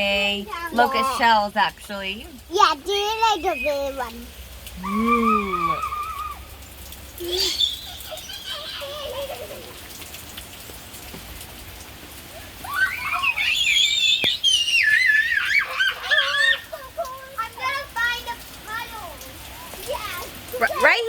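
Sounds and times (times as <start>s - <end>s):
steady rain falling: 0.0s - 21.0s
high-pitched warbling calls: 3.2s - 4.2s, 4.8s - 6.4s, 7.2s - 8.9s, 13.0s - 16.7s.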